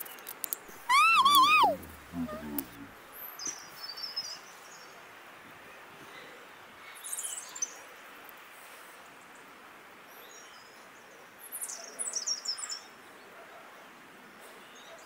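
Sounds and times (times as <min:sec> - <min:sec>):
songbird chirping: 0:00.7 - 0:02.9.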